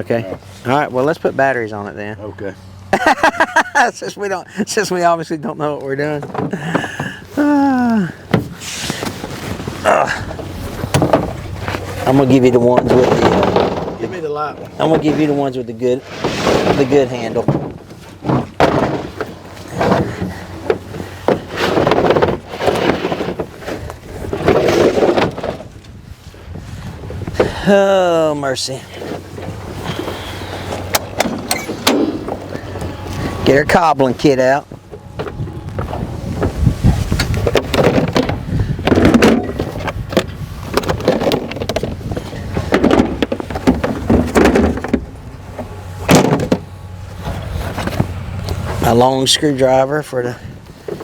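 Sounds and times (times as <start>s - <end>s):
equipment knocking and clunking: 8.2s - 15.3s, 16.7s - 25.8s, 34.6s - 48.8s
wind noise on microphone: 21.9s - 27.7s, 34.6s - 48.9s.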